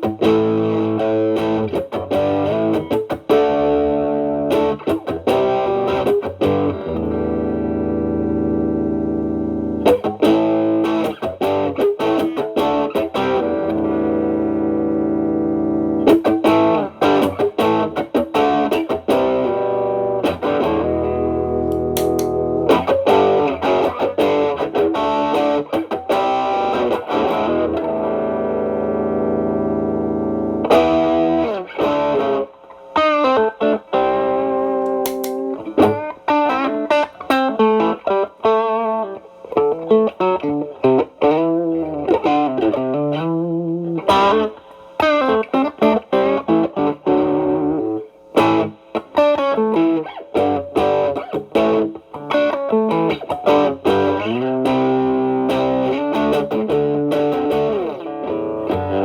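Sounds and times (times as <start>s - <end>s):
overdriven electric guitar: 0.0s - 59.0s.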